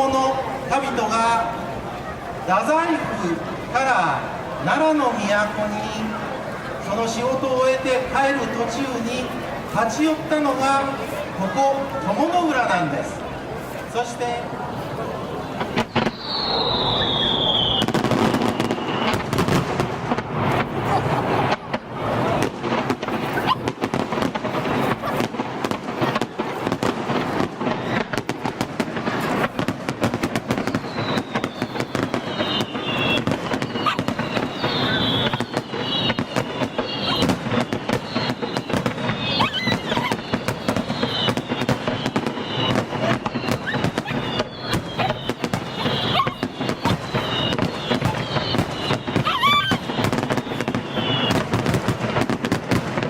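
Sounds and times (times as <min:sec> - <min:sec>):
fireworks crackling pops: 0:00.0 - 0:53.0
falling firework whistles: 0:15.6 - 0:53.0.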